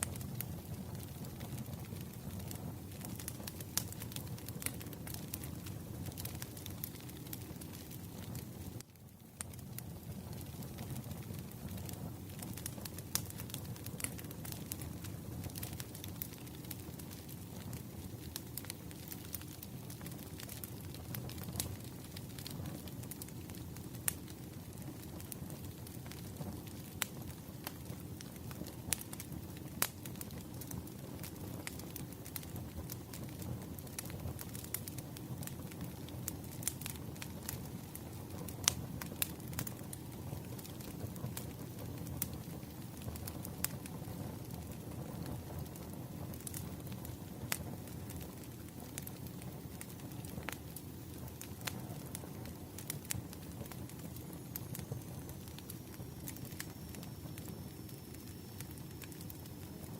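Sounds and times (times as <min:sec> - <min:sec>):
firewood crackling and popping: 0:00.0 - 0:59.9
low rush of flames: 0:00.0 - 0:59.9.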